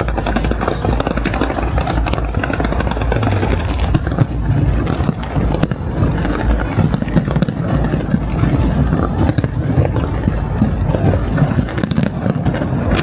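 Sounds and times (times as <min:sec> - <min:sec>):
fireworks crackling and popping: 0:00.0 - 0:13.0
low rumble: 0:00.0 - 0:13.0
music over loudspeakers: 0:00.0 - 0:13.0.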